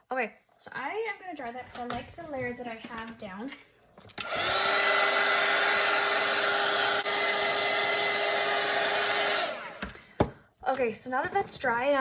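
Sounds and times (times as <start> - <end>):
hair dryer blowing: 4.2 - 10.3.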